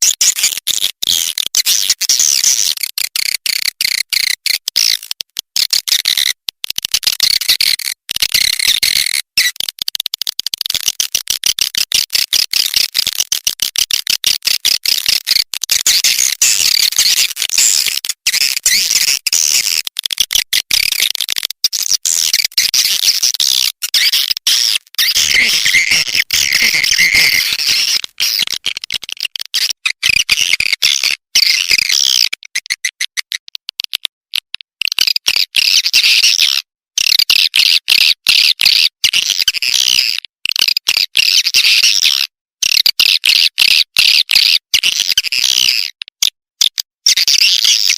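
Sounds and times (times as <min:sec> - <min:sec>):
high-pitched twittering bird chirps: 0:23.9 - 0:28.6.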